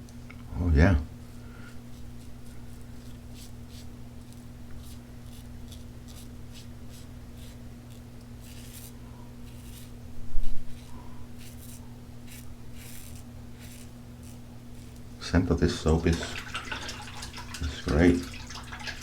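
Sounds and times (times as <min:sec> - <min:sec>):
razor scraping stubble: 0:01.7 - 0:16.4.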